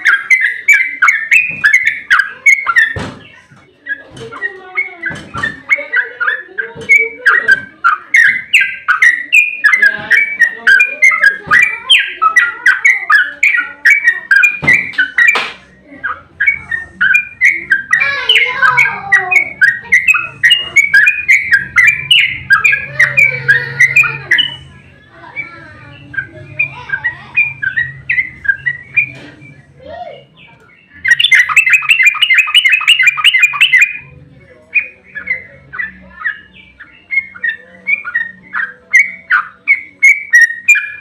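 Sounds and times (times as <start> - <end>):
bird singing bubbling notes: 0.0 - 29.8, 30.4 - 41.0.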